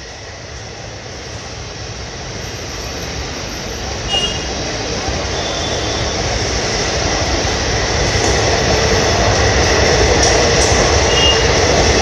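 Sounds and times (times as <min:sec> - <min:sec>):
train coaches passing at speed: 0:00.0 - 0:12.0.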